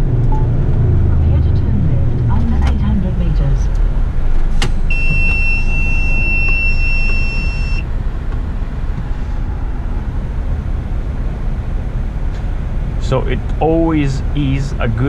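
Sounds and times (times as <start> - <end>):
truck engine and tyres rumbling: 0.0 - 15.0
high-pitched electronic beep: 4.9 - 7.8.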